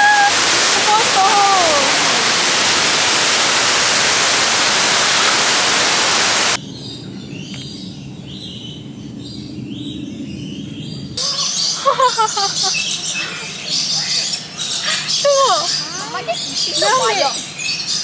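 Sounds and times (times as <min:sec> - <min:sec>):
falling call: 0:00.0 - 0:06.6
waterfall rushing: 0:00.0 - 0:06.6.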